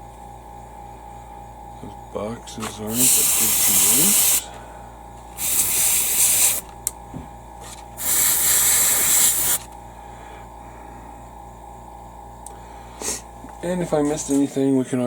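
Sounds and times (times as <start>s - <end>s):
airbrush spraying hiss: 2.9s - 4.5s, 5.4s - 6.6s, 8.0s - 9.6s.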